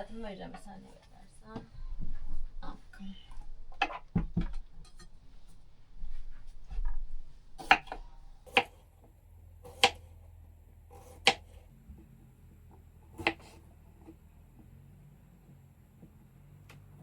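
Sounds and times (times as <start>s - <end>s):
knife knocking on cutting board: 3.8s - 5.1s.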